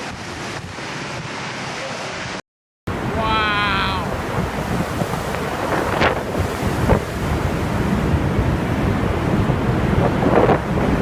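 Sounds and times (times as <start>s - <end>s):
wind buffeting microphone: 2.9s - 11.0s.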